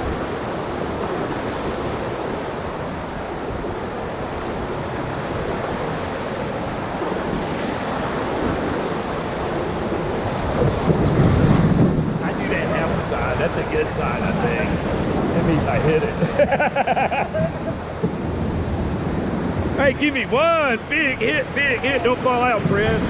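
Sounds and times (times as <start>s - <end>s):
whitewater rapids rushing: 0.0s - 23.0s.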